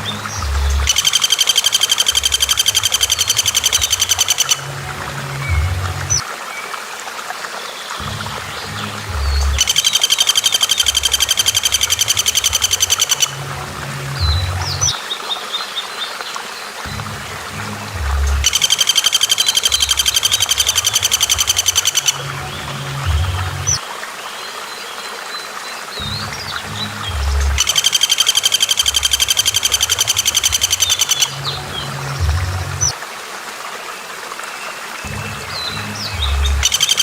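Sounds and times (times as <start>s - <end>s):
background music with low bass: 0.0s - 1.0s, 2.2s - 6.2s, 8.0s - 10.0s, 10.9s - 15.0s, 16.9s - 18.7s, 19.7s - 23.8s, 26.0s - 27.8s, 28.8s - 33.0s, 35.1s - 37.0s
songbird rattling trill: 0.6s - 4.6s, 9.3s - 13.4s, 18.4s - 22.3s, 27.4s - 31.9s, 36.2s - 37.0s
short high bird chirps: 0.8s - 4.6s, 18.4s - 22.2s, 27.6s - 31.4s.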